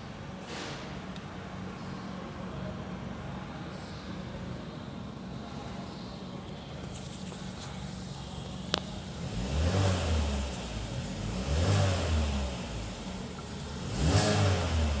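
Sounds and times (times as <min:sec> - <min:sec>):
car engine idling and revving: 0:06.9 - 0:15.0.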